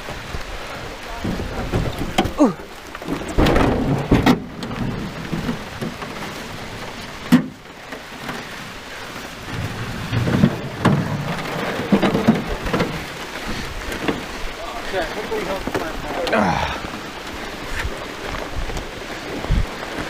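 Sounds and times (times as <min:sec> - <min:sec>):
rain falling: 0:00.0 - 0:20.0
thunder rumbling: 0:03.1 - 0:07.1, 0:09.4 - 0:14.6.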